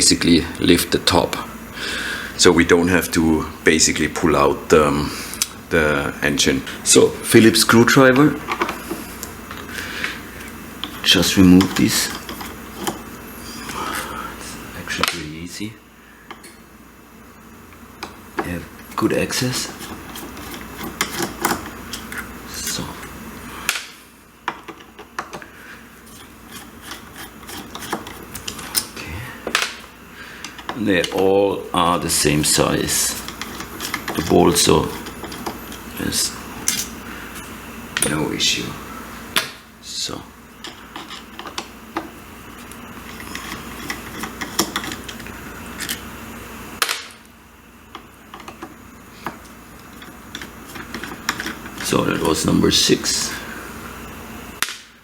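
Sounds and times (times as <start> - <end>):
screwdriver clicking on metal: 19.7 - 22.2, 26.2 - 28.9, 32.9 - 35.8, 43.0 - 46.0, 50.0 - 51.9
light metal scraping: 26.0 - 28.8.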